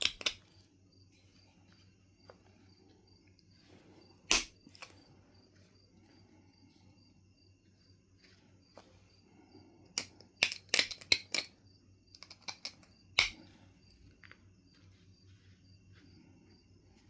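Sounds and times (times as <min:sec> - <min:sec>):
flint knapping clicks and snaps: 0:00.0 - 0:00.5, 0:04.3 - 0:04.9, 0:09.9 - 0:11.5, 0:12.1 - 0:13.5.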